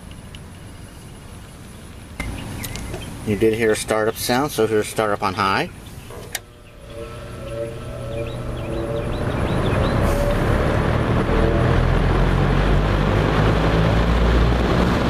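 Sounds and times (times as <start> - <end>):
fan air rushing: 0.0 - 15.0
fan motor humming: 0.0 - 15.0.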